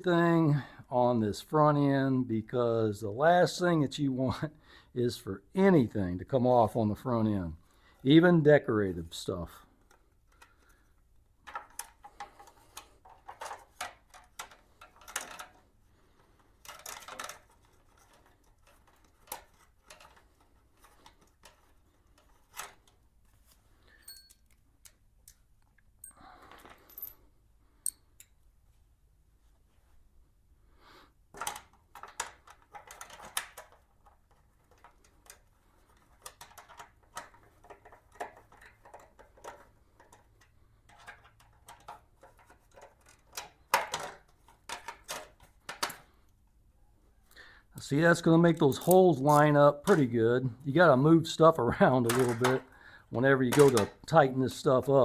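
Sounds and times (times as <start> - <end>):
metal bolts and tools clinking: 11.4 - 15.6, 16.6 - 22.9, 23.9 - 27.2, 27.8 - 28.4, 48.4 - 50.2, 51.7 - 52.6, 53.2 - 55.0.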